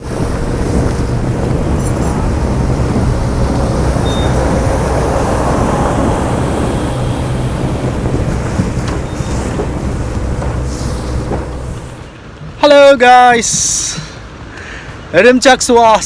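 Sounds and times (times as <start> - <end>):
boat engine droning: 0.0 - 12.4
water noise: 0.0 - 12.8
wind: 0.0 - 16.0.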